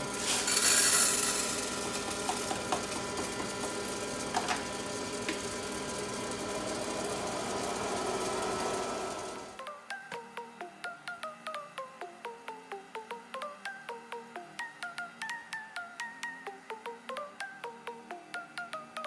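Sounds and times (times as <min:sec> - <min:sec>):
popcorn popper motor hum: 0:00.0 - 0:09.6.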